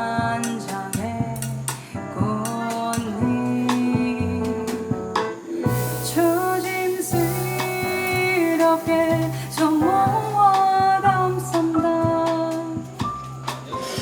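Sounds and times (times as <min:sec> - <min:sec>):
double bass: 0:00.0 - 0:14.0
drums: 0:00.0 - 0:14.0
piano: 0:00.0 - 0:14.0
woman singing long notes: 0:06.0 - 0:13.0.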